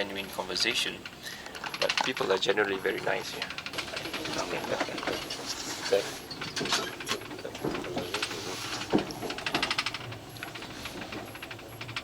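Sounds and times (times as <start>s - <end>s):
train carriage rattling: 0.0s - 12.0s.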